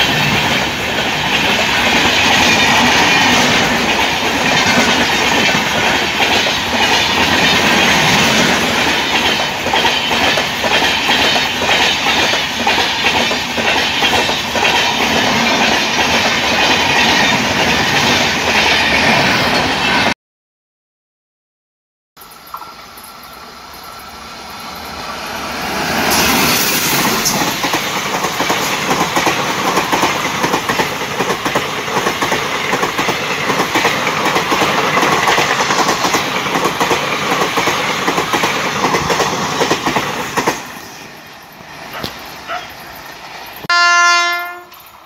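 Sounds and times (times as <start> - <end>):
train wheels clickety-clack: 0.0 - 20.1, 22.4 - 43.7
train horn blast: 43.7 - 44.8.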